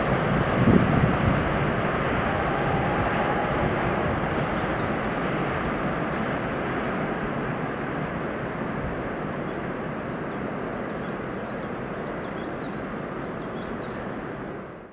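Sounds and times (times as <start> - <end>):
freight train rumbling past: 0.0 - 9.7.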